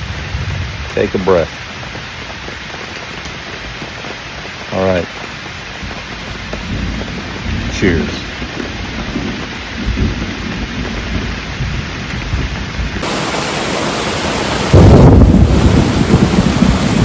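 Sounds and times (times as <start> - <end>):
low rumble of thunder: 0.0 - 1.1, 5.8 - 17.0
rain falling: 0.0 - 17.0.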